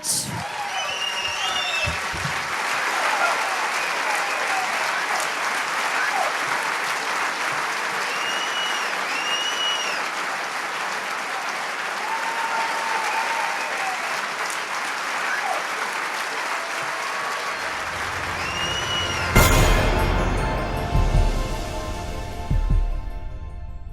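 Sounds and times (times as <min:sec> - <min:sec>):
short whistles: 0:00.0 - 0:02.0, 0:08.0 - 0:10.1
audience applauding: 0:00.0 - 0:22.8.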